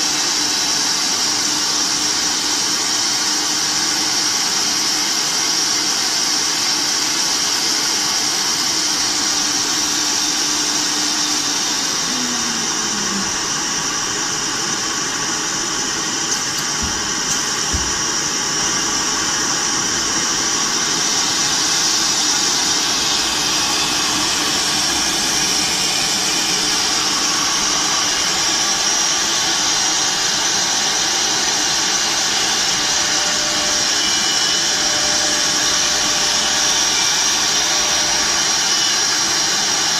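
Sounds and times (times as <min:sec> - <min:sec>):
machine noise: 0:00.0 - 0:39.9
router spindle whine: 0:00.0 - 0:39.9.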